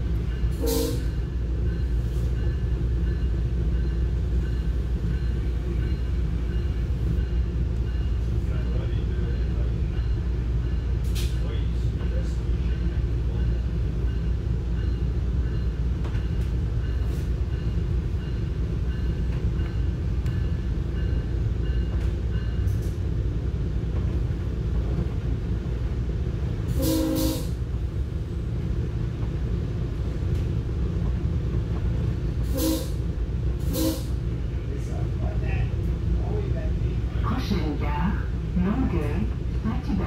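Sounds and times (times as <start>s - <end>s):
train rumbling on track: 0.0s - 40.0s
train horn blast: 0.6s - 1.1s, 26.7s - 27.6s, 32.5s - 33.0s, 33.7s - 34.2s.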